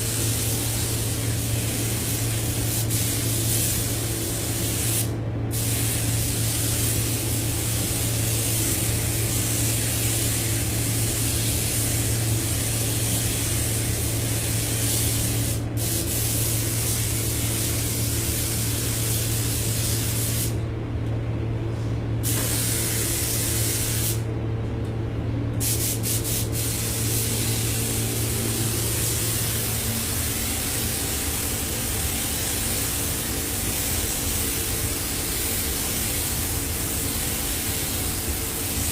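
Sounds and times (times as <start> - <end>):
paint spray gun hissing: 0.0 - 20.6, 22.2 - 24.2, 25.6 - 38.9
steady low hum: 0.0 - 38.9.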